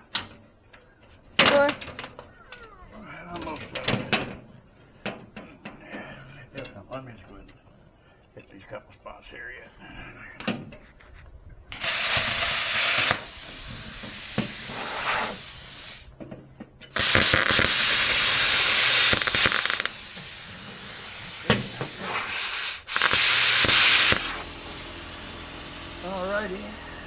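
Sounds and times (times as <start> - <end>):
cordless driver driving screws: 11.8 - 16.1, 16.9 - 27.0.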